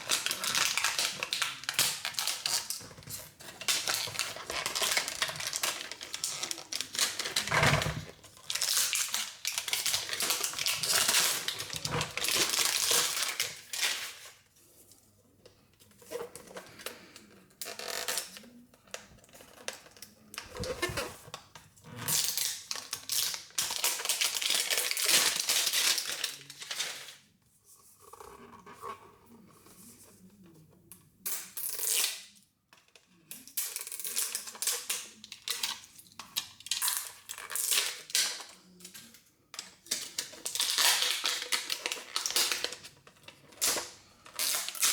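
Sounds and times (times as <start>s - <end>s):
plastic packaging crinkling and tearing: 0.0s - 14.4s, 22.1s - 27.2s, 33.8s - 38.6s, 39.8s - 44.9s.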